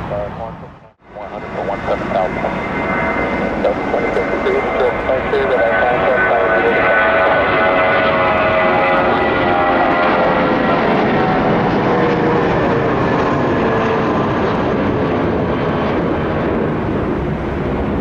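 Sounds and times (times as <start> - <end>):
jet airliner engine roar: 0.0 - 18.0.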